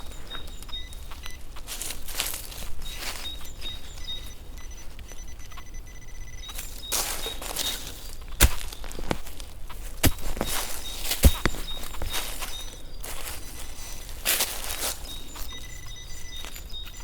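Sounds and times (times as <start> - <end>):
footsteps crunching through leaves: 0.0 - 3.9, 6.5 - 15.7.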